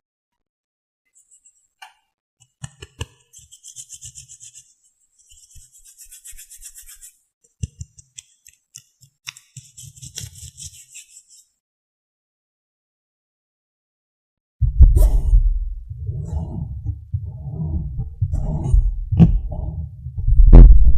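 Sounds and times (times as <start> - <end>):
soft brushing or rubbing: 3.3 - 7.2, 9.6 - 11.5, 15.0 - 20.1.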